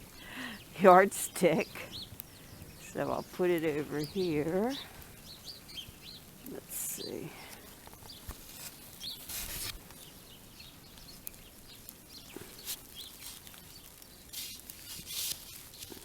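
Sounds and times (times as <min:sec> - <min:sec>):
faint bird chirps: 0:01.6 - 0:08.3
snow crunching: 0:02.9 - 0:09.9.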